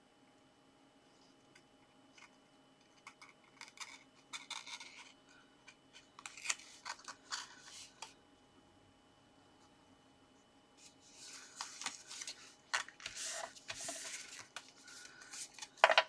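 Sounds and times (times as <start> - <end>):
paper card rustling and scraping: 3.0 - 5.2, 5.9 - 8.2, 10.8 - 16.0.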